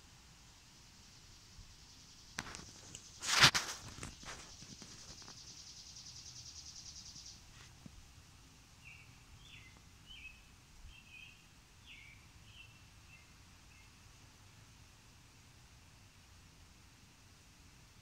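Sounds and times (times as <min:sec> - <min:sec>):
songbird trills and chirps: 0:00.7 - 0:03.3, 0:04.0 - 0:07.6, 0:08.8 - 0:14.1.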